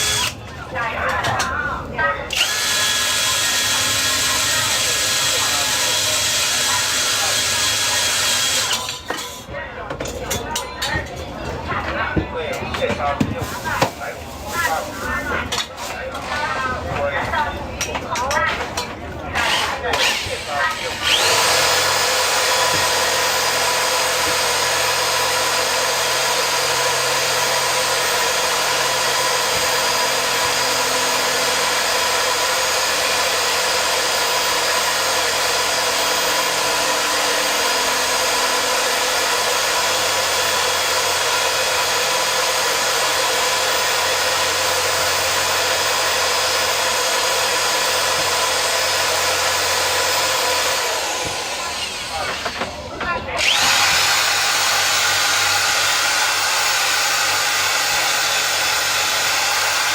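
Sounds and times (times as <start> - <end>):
small electric motor whining: 19.4 - 24.5, 47.7 - 52.7, 53.4 - 59.9.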